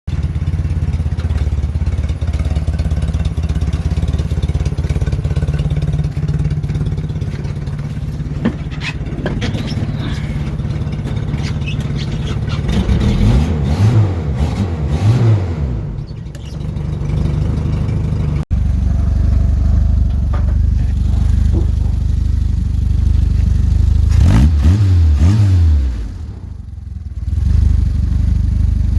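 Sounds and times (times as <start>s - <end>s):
car engine idling: 0.1s - 13.4s, 15.8s - 24.2s, 26.1s - 28.9s
engine revving: 11.5s - 16.2s, 24.0s - 28.2s.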